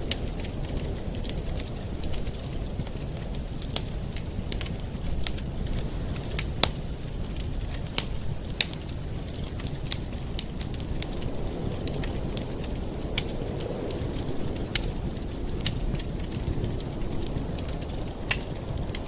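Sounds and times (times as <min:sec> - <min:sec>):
campfire flames rumbling: 0:00.0 - 0:19.0
wood crackling and popping: 0:00.0 - 0:19.0.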